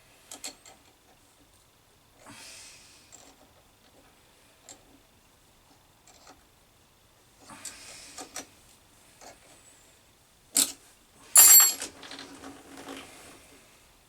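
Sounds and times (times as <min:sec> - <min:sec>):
metallic clatter with ringing: 0:11.4 - 0:11.9
metal tools clicking and clattering: 0:11.4 - 0:12.3.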